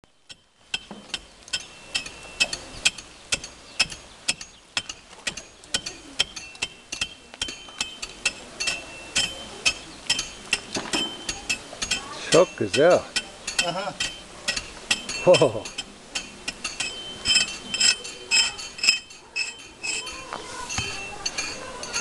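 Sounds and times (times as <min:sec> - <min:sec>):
hammers striking metal: 0:00.2 - 0:22.0.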